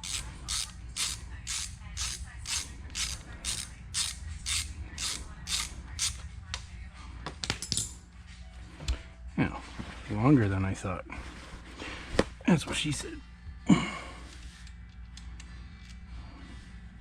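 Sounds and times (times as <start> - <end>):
ratchet wrench clicking: 0.0 - 6.2.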